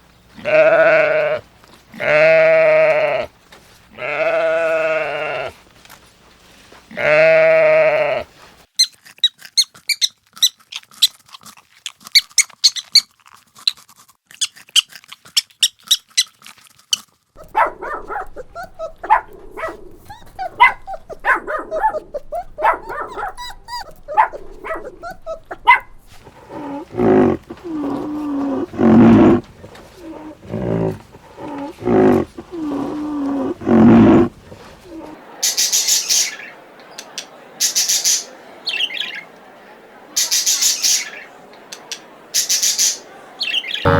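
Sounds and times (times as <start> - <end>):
animal whining and barking: 17.4 - 35.2
animal yelping: 17.4 - 35.2.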